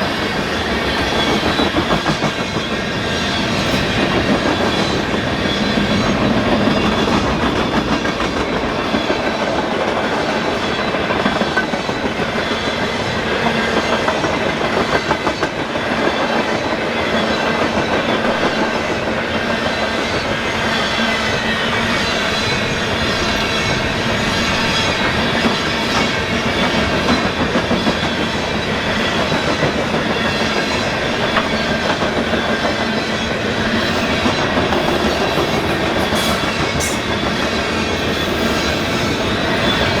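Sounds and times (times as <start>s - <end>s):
freight train rumbling past: 0.0s - 40.0s
wheels clicking over rail joints: 24.8s - 40.0s.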